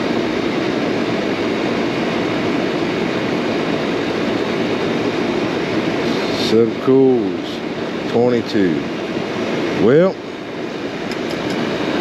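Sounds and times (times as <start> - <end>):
condenser fan rushing air: 0.0 - 12.0.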